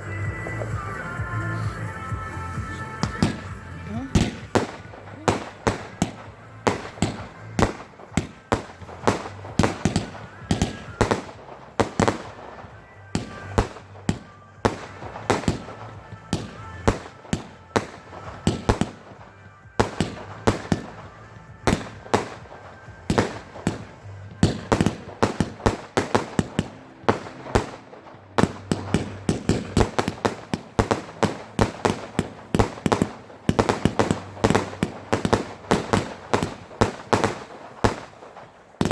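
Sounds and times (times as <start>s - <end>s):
fireworks bursting with sharp bangs: 0.0s - 38.9s.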